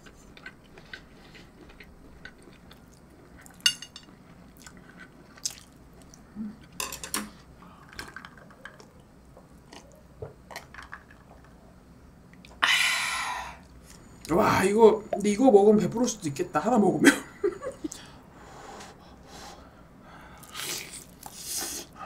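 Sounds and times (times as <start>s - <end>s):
chewing and biting food: 0.1s - 3.6s, 4.4s - 6.2s.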